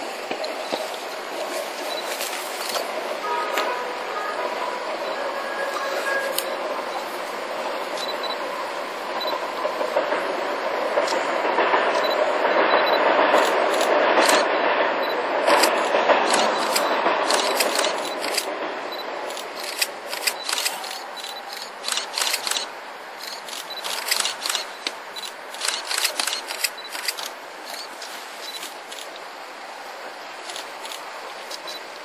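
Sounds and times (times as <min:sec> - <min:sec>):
train running along track: 0:00.0 - 0:32.0
sharp clicks and scrapes: 0:15.4 - 0:18.5, 0:19.3 - 0:29.3.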